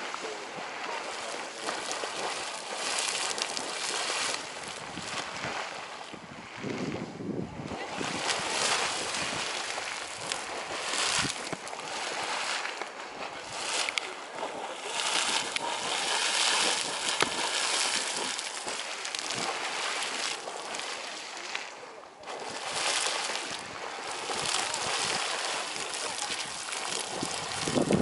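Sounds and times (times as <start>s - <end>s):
geyser water splashing and hissing: 0.0s - 6.6s, 7.6s - 28.0s.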